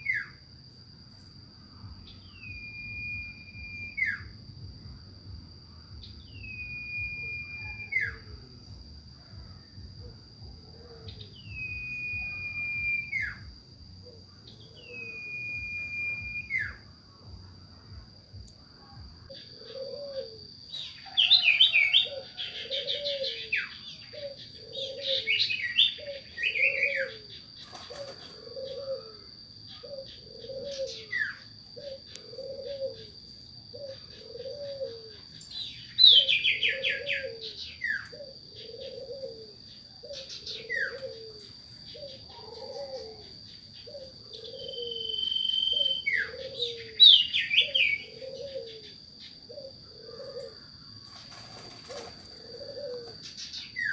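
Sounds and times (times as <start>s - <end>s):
owl hooting: 2.2s - 4.4s, 6.2s - 8.5s, 10.0s - 16.9s, 18.8s - 53.9s
small birds chirping and trilling: 19.3s - 53.9s.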